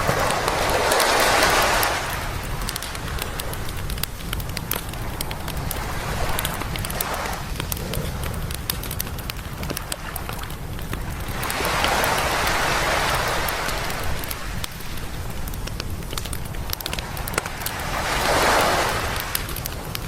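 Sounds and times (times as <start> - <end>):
campfire crackling and popping: 0.0 - 20.0
surf rumble: 0.0 - 20.0
waves washing on beach: 0.0 - 20.0.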